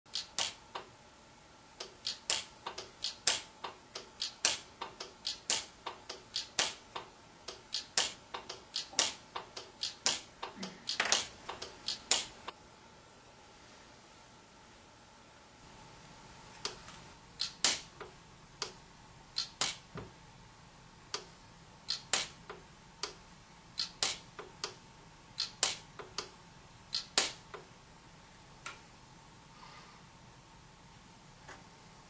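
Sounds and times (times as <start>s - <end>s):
welder sharp snaps: 0.1s - 0.6s, 1.8s - 6.8s, 7.5s - 12.5s, 17.4s - 18.0s, 19.4s - 19.9s, 21.9s - 22.4s, 23.8s - 24.8s, 25.4s - 26.3s, 26.9s - 27.5s.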